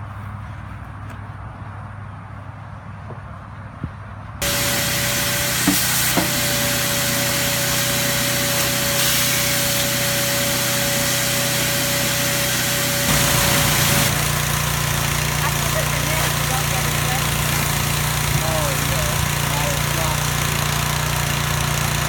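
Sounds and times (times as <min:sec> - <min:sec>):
machine whine: 0:04.4 - 0:19.0
car wash machine rushing: 0:04.4 - 0:22.0.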